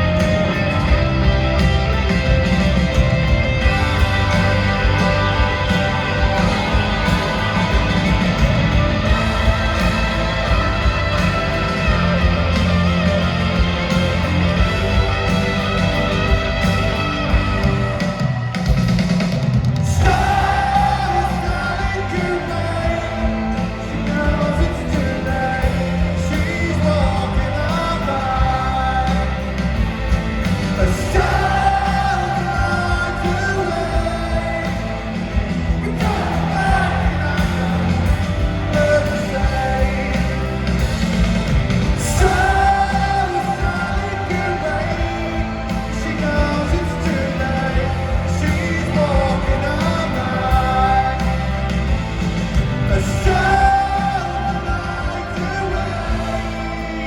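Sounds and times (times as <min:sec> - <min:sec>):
live rock band playing: 0:00.0 - 0:57.0
person singing: 0:20.0 - 0:29.8, 0:30.6 - 0:57.0.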